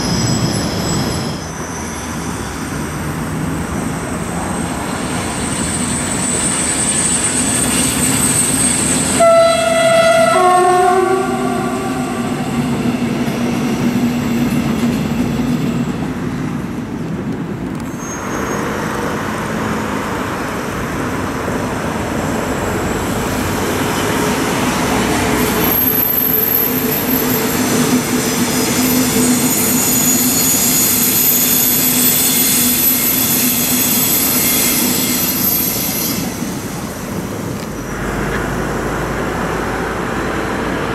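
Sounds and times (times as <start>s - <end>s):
trains running on flyover: 0.0s - 40.9s
two-tone train horn: 9.2s - 12.6s.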